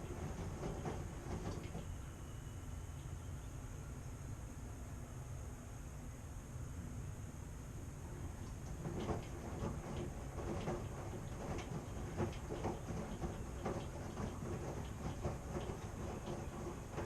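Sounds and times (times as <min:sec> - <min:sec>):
load knocking in turning drum: 0:00.0 - 0:01.8, 0:08.6 - 0:17.0
washing machine rumble: 0:00.0 - 0:04.0, 0:07.3 - 0:17.0.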